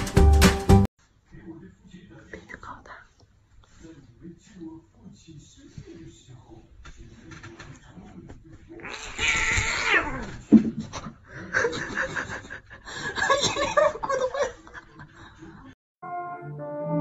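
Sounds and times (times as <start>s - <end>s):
music: 0.0s - 0.9s, 16.0s - 17.0s
cat meowing: 8.8s - 10.3s.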